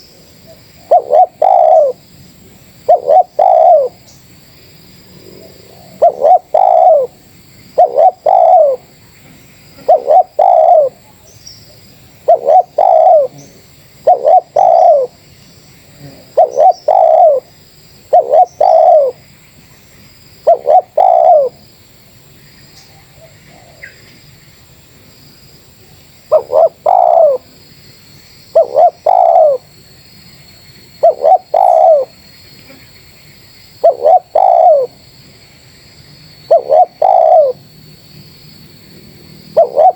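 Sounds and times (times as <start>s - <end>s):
dove cooing: 0.0s - 2.0s, 2.8s - 4.0s, 5.2s - 7.2s, 7.8s - 8.9s, 9.7s - 11.0s, 12.2s - 15.2s, 15.9s - 19.2s, 20.4s - 21.6s, 26.3s - 27.5s, 28.5s - 29.7s, 31.0s - 32.9s, 33.8s - 35.0s, 36.5s - 37.6s, 39.5s - 39.9s.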